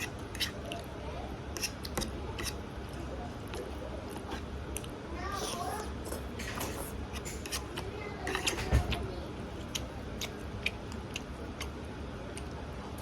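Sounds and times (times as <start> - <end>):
chewing with wet clicks and smacks: 1.6 - 5.0, 6.0 - 13.0.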